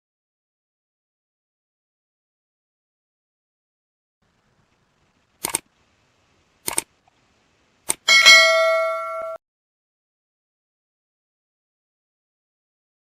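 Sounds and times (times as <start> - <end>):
short clicks: 5.4 - 5.7, 6.6 - 6.9, 7.8 - 8.1
bell-like chime ringing: 8.1 - 9.4.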